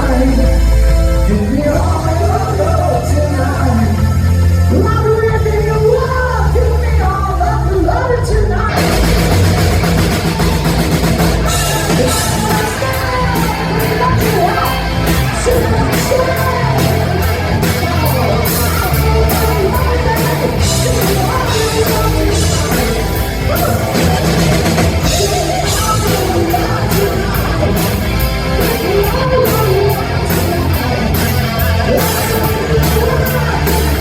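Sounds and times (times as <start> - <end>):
bass guitar: 0.0 - 34.0
distorted electric guitar: 0.0 - 34.0
person singing: 0.0 - 34.0
steady drum beat: 8.7 - 34.0.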